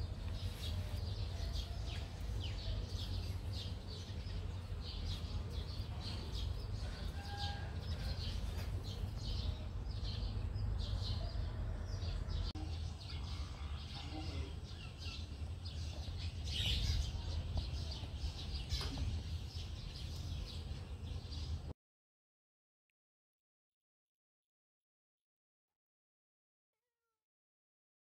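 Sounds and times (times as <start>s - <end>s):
small birds chirping: 0.0s - 21.7s.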